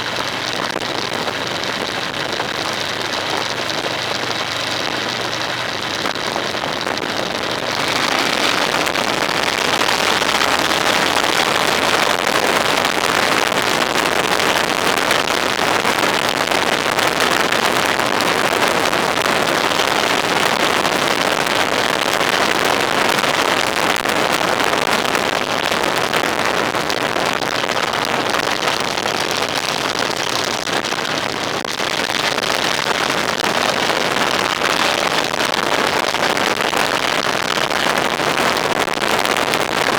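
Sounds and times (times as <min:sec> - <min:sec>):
vehicle road and wind noise: 0:00.0 - 0:12.0.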